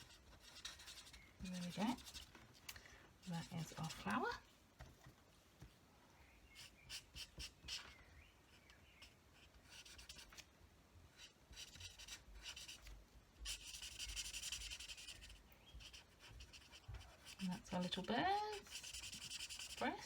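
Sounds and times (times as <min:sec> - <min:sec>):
marker scratching on cardstock: 0:00.0 - 0:02.3, 0:03.2 - 0:04.4, 0:06.6 - 0:07.9, 0:08.5 - 0:10.4, 0:11.2 - 0:12.8, 0:13.4 - 0:20.0.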